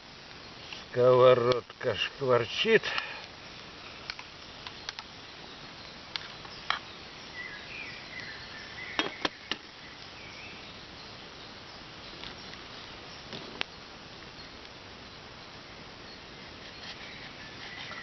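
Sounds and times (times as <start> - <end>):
sharp pops and crackles: 0.2 - 1.9, 2.8 - 5.2, 5.8 - 6.9, 12.2 - 13.8
faint bird chirps: 4.3 - 15.3, 16.0 - 18.0.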